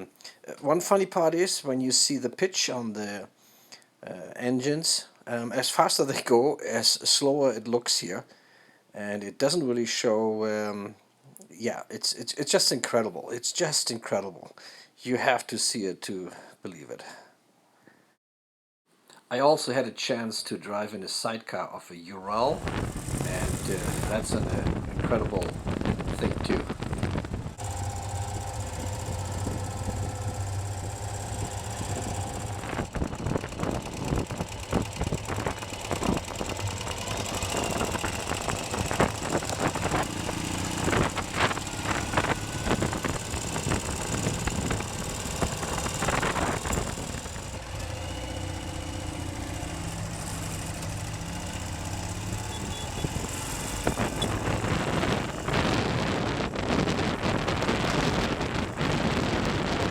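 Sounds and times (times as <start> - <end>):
motorcycle engine running: 22.6 - 59.9.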